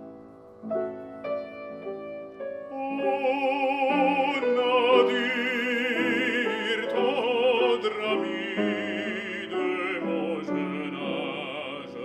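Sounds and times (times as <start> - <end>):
piano accompaniment: 0.0 - 12.0
baritone singing with vibrato: 2.5 - 12.0.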